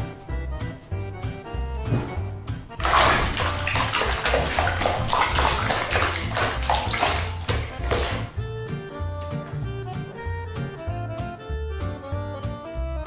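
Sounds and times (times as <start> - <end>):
water rushing: 2.8 - 8.4.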